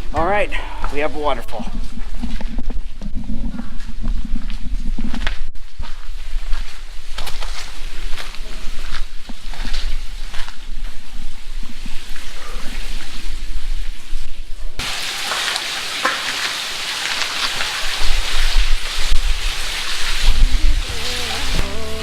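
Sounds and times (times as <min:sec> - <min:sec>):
waterfall splashing onto rock: 0:14.8 - 0:21.6
music: 0:20.8 - 0:22.0.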